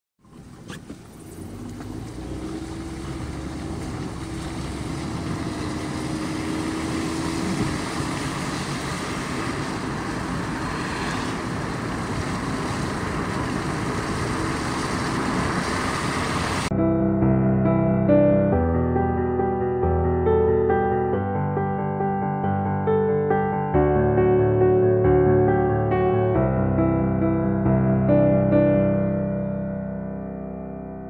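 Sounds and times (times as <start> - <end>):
car driving: 0.2 - 16.7.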